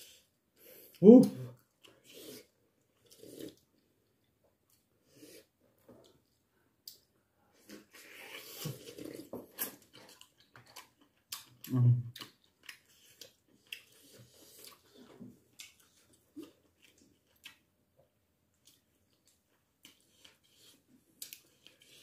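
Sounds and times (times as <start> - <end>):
chewing: 7.6 - 17.7, 18.5 - 22.0.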